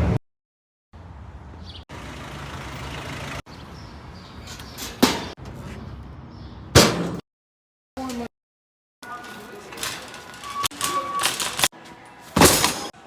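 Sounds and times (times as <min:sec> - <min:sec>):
vehicle engine low rumble: 0:01.0 - 0:06.8.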